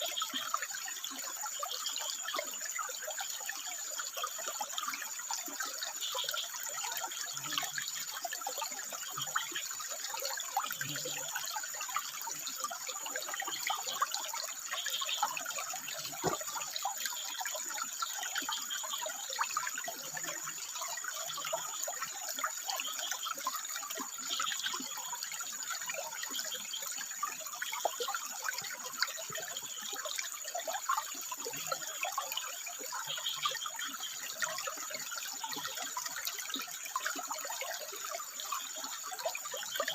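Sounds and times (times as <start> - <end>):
water trickling over rock: 0.0 - 39.9
frogs calling: 11.0 - 27.2, 29.4 - 37.2.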